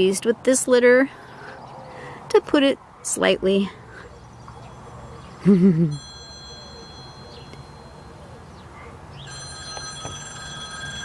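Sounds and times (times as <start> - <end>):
electronic telephone ringing: 6.0 - 8.1, 9.3 - 11.0.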